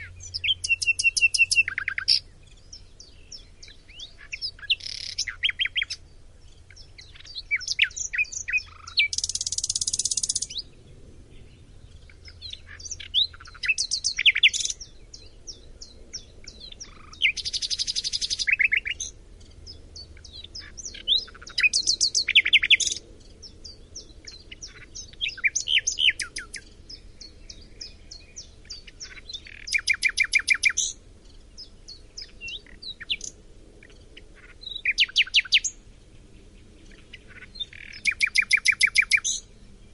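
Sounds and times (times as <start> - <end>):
songbird singing whistled phrases: 0.0 - 10.7, 12.0 - 19.1, 20.0 - 23.0, 23.6 - 31.0, 34.6 - 35.8, 37.2 - 39.5.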